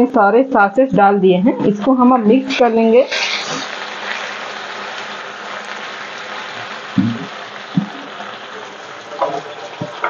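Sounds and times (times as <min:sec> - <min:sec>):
vegetables sizzling in a wok: 0:02.0 - 0:10.0.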